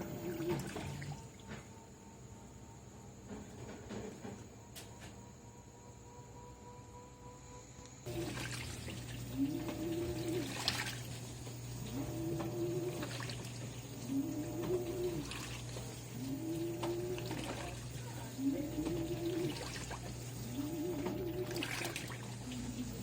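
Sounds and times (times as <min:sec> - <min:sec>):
water sloshing in drum: 0:00.0 - 0:01.7, 0:08.1 - 0:23.0
washing machine motor whine: 0:00.0 - 0:23.0.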